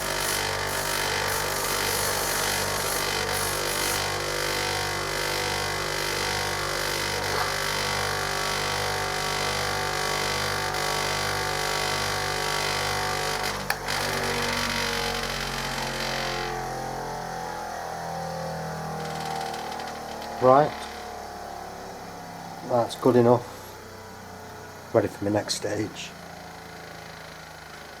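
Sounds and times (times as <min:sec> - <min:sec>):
steel grinding hiss: 0:00.0 - 0:04.5
bench grinder motor hum: 0:00.0 - 0:28.0.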